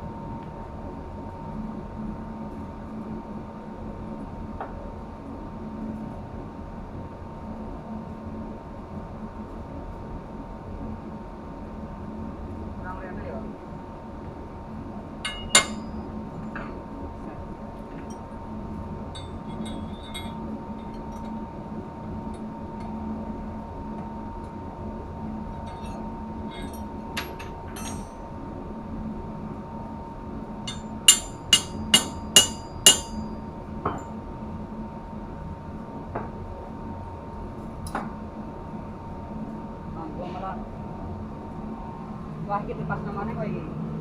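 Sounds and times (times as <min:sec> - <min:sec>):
machinery hum: 0:00.0 - 0:44.0
hammer striking metal: 0:15.3 - 0:15.9, 0:25.7 - 0:28.2, 0:30.7 - 0:33.3.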